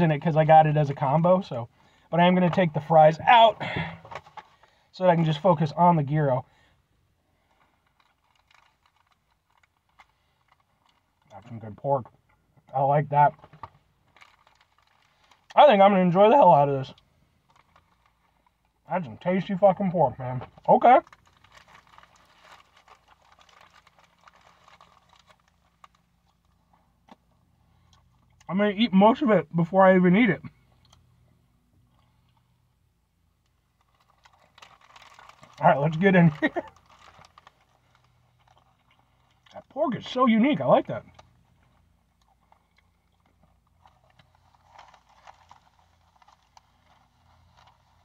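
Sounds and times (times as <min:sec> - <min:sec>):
wrapper handling: 0:07.5 - 0:11.3, 0:13.6 - 0:15.6, 0:21.0 - 0:26.6, 0:33.8 - 0:39.6, 0:41.1 - 0:48.0.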